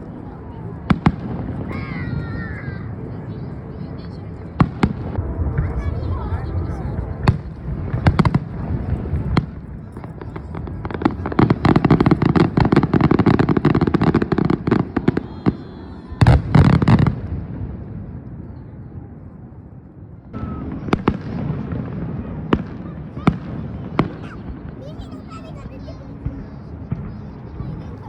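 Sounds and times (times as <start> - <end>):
fireworks crackling: 0.0 - 18.3
fireworks booms: 4.6 - 19.2, 20.3 - 25.1.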